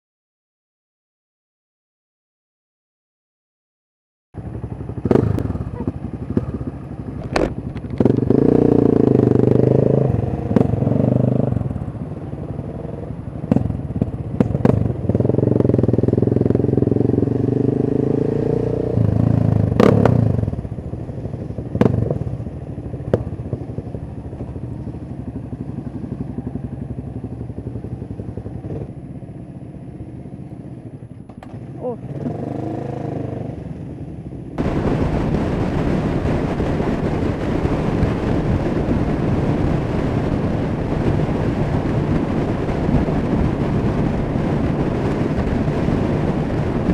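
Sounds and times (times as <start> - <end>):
motorcycle engine pulling hard: 4.4 - 29.2, 30.3 - 33.9.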